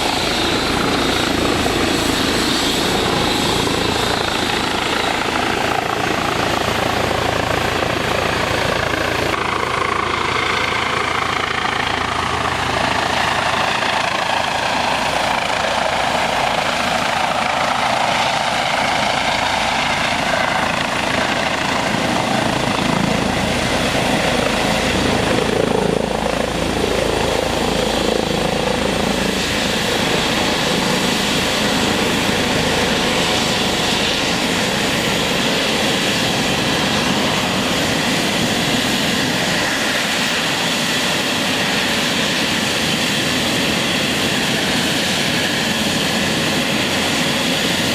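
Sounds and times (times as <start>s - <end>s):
helicopter rotor and turbine: 0.0s - 47.9s.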